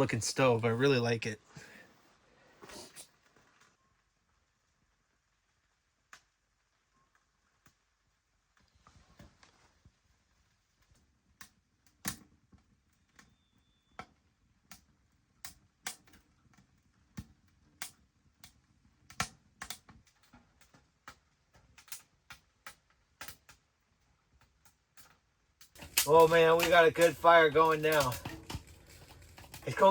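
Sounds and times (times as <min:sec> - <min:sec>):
wood fire crackling and popping: 0:06.0 - 0:29.9.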